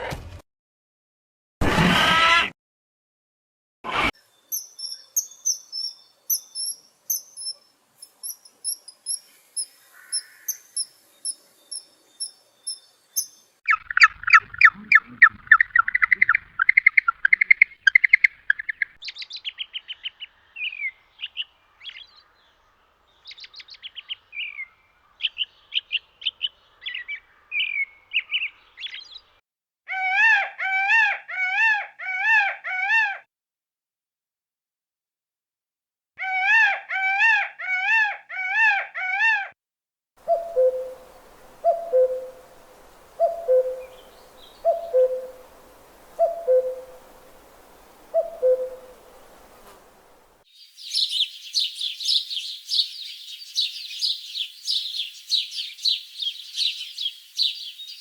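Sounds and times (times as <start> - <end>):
birds chirping: 4.3 - 29.3, 40.2 - 58.0
bird warbling call: 8.2 - 12.3, 13.2 - 22.1, 40.2 - 58.0.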